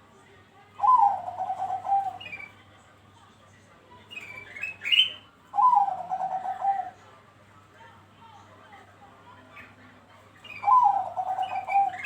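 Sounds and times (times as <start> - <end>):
dove cooing: 0.8 - 2.2, 5.6 - 7.0, 10.6 - 12.0.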